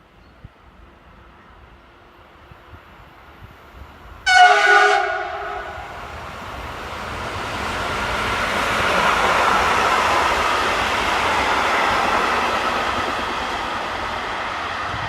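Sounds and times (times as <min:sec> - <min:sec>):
approaching train rumble: 0:00.1 - 0:15.0
train horn blast: 0:04.3 - 0:06.1.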